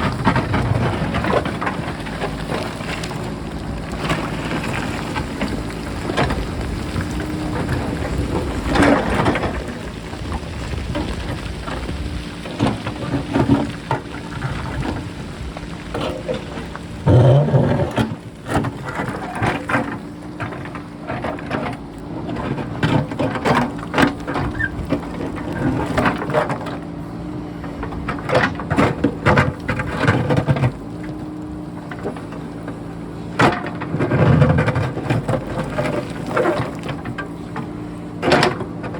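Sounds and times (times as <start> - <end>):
wind rumbling on microphone: 0.0 - 20.2
diesel engine running: 0.0 - 38.9
rocks clattering and rolling: 0.0 - 38.9.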